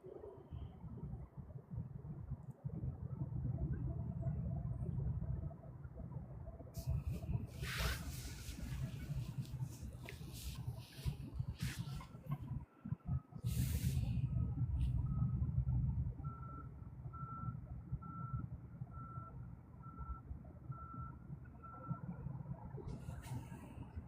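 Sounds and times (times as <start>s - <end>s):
low rumble: 0.1s - 24.0s
reversing alarm beeping: 16.2s - 22.0s.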